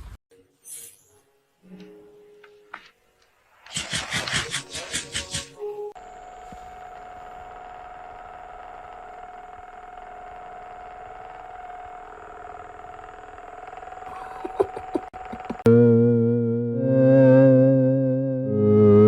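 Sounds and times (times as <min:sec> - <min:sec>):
machine hum with whine: 0:05.9 - 0:19.0.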